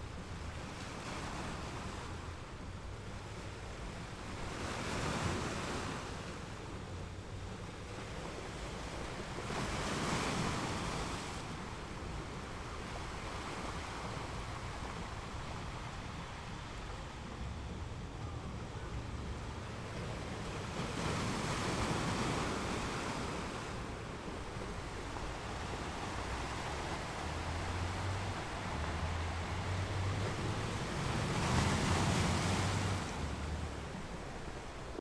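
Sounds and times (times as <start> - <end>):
surf hissing on shore: 7.6 - 35.0.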